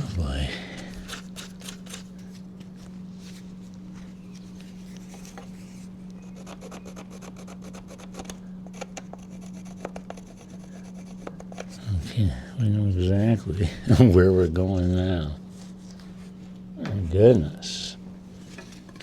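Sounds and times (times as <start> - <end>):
steady low hum: 0.0 - 19.0
wood rubbing and scraping: 4.6 - 12.0.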